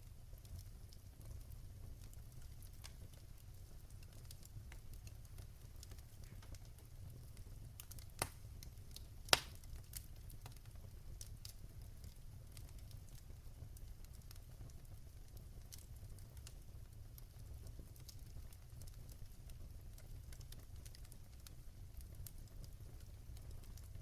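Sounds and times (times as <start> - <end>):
fire crackling in fireplace: 0.0 - 24.0
sharp fire pops: 7.8 - 10.6.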